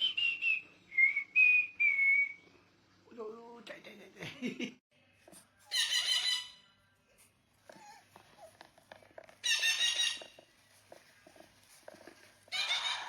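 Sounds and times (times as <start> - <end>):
parrot screeching: 5.7 - 6.6, 9.4 - 10.4, 12.5 - 13.0.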